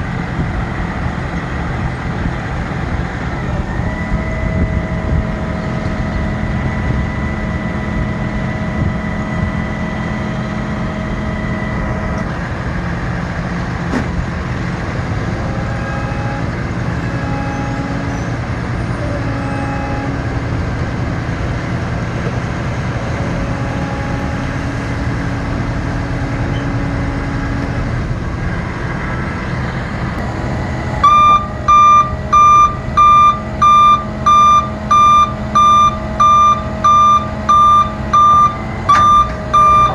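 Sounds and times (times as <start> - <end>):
truck engine running: 0.0 - 39.9
warning alarm beeping: 31.0 - 39.9.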